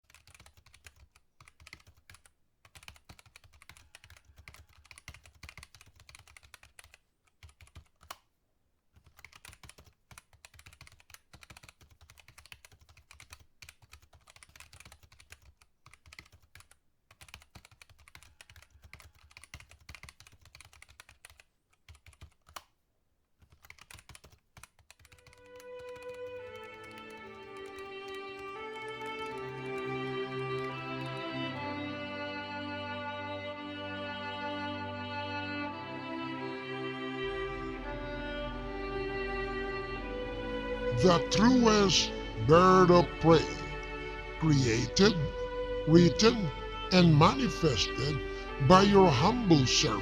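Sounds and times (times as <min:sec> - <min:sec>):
keyboard typing: 0:00.0 - 0:08.2, 0:09.0 - 0:22.7, 0:23.4 - 0:31.6.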